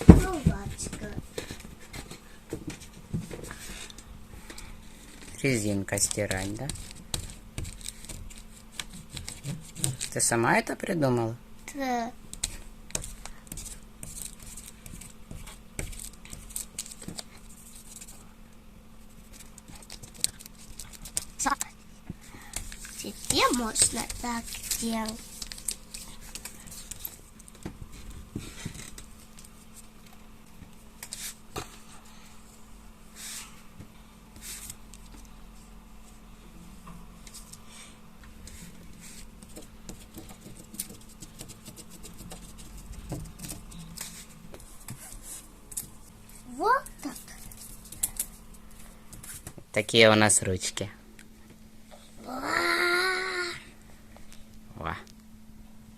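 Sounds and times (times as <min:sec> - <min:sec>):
drawing things being handled: 0:00.0 - 0:10.3, 0:12.3 - 0:18.3, 0:19.0 - 0:32.0, 0:38.4 - 0:49.6
faint steady hum: 0:00.0 - 0:55.9
taps and scratches on paper: 0:06.1 - 0:10.2, 0:12.3 - 0:18.1, 0:19.3 - 0:21.7, 0:39.0 - 0:45.4.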